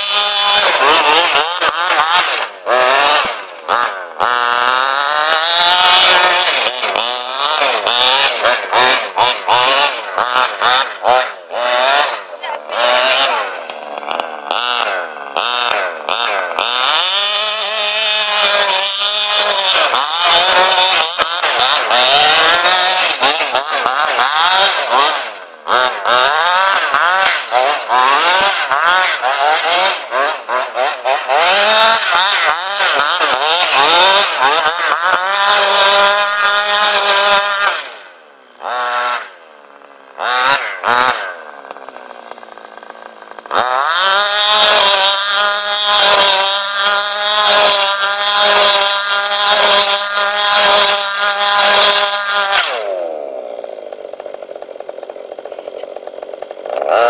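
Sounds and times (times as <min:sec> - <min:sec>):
model car engine revving: 0:00.0 - 0:57.0.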